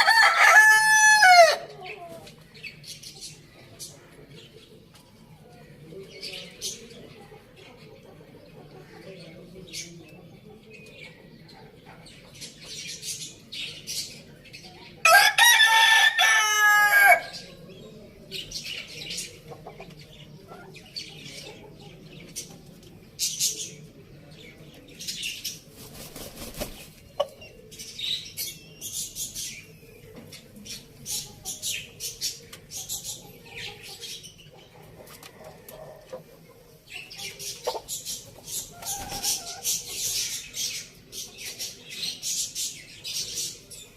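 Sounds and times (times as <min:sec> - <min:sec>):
rooster crowing: 0:00.0 - 0:01.7, 0:15.0 - 0:17.4
small birds chirping: 0:00.0 - 0:15.2, 0:16.2 - 0:43.9.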